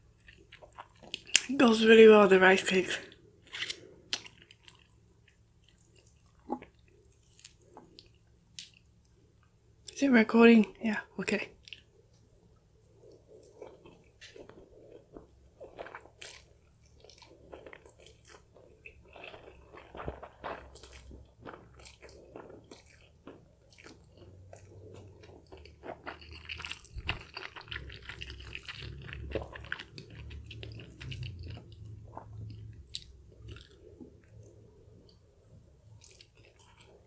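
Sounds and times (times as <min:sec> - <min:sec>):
person chewing noodles: 0:00.0 - 0:01.5, 0:03.4 - 0:08.8, 0:12.9 - 0:35.2, 0:35.8 - 0:37.0.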